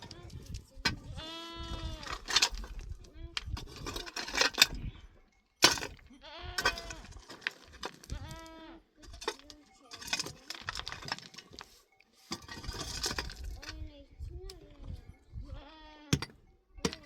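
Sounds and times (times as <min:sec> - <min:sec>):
goats bleating: 0:01.0 - 0:02.2, 0:06.1 - 0:07.1, 0:08.0 - 0:08.9, 0:15.4 - 0:16.2.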